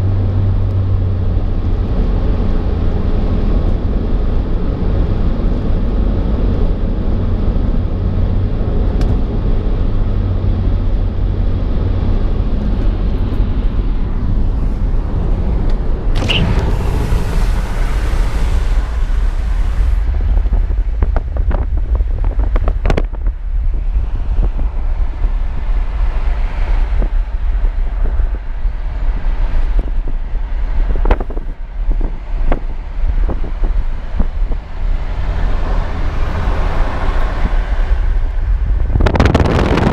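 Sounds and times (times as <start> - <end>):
car engine and tyre rumble: 0.0 - 39.9
wind noise: 0.0 - 39.9
hiss burst: 16.2 - 20.1.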